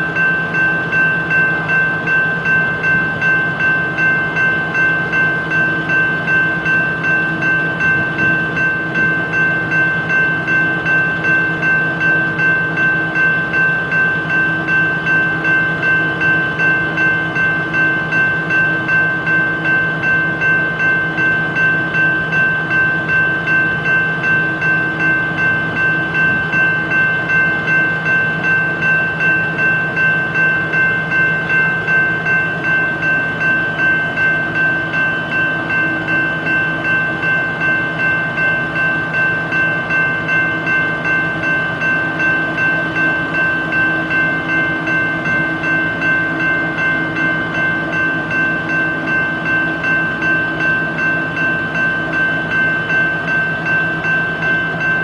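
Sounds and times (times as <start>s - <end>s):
train mechanical hum pulsing: 0.0s - 55.0s.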